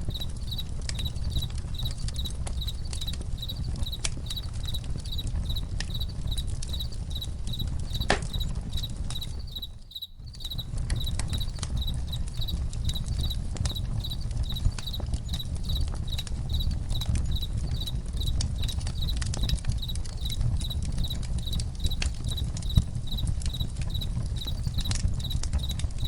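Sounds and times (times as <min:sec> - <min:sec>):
campfire crackling and popping: 0:00.0 - 0:26.0
crickets chirping: 0:00.0 - 0:26.0.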